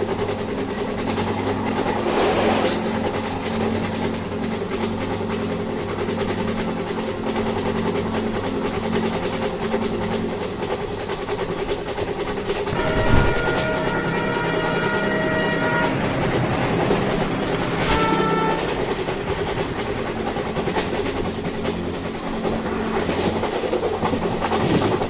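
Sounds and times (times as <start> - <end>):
rail noise: 0.0 - 25.0
train engine drone: 0.0 - 25.0
train horn blast: 12.7 - 19.1.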